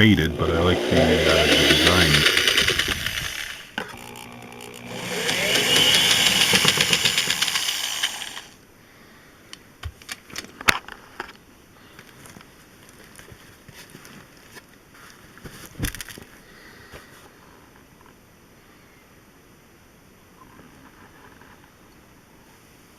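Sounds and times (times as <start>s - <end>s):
power driver spinning up: 0.0s - 8.6s.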